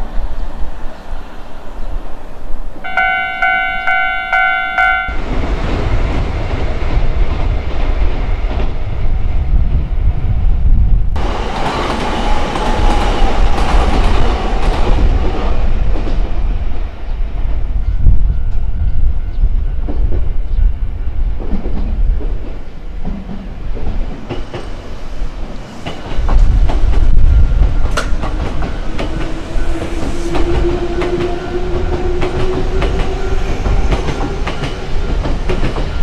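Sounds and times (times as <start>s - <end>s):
train wheels clattering over rail joints: 25.7s - 36.0s.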